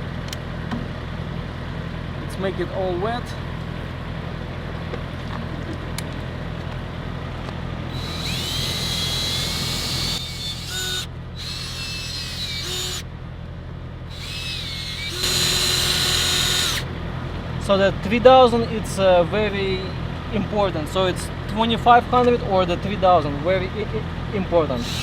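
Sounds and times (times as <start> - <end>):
electric drill wet-sanding plastic: 7.9 - 13.0, 14.1 - 16.8, 24.8 - 25.0.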